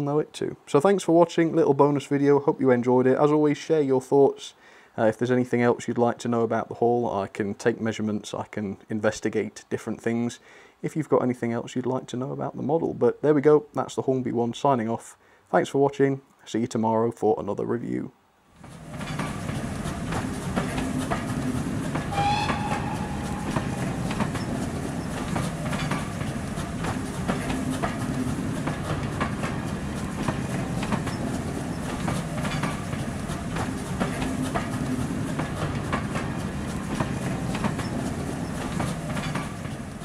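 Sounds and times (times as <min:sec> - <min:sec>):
train rumble: 0:18.6 - 0:40.0
train wheels clickety-clack: 0:18.6 - 0:40.0
short high tone: 0:22.1 - 0:24.6.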